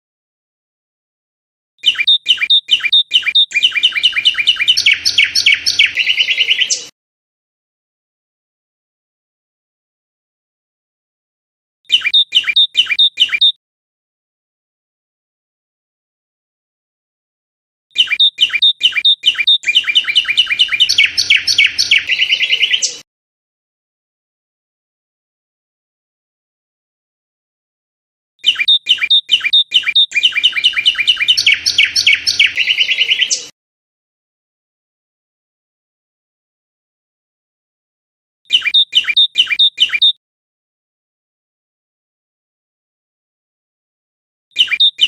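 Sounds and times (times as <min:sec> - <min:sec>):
nightingale singing: 0:01.8 - 0:06.9, 0:11.9 - 0:13.6, 0:17.9 - 0:23.0, 0:28.4 - 0:33.5, 0:38.5 - 0:40.2, 0:44.6 - 0:45.0.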